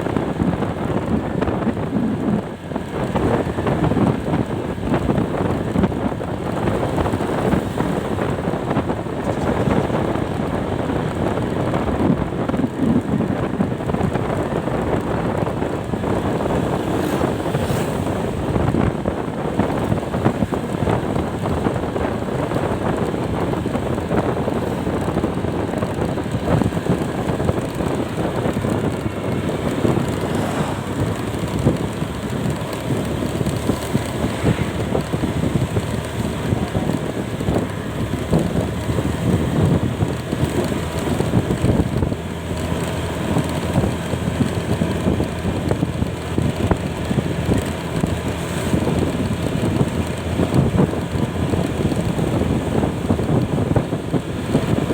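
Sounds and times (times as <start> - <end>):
road noise: 0.0 - 54.9
wind buffeting microphone: 0.0 - 54.9.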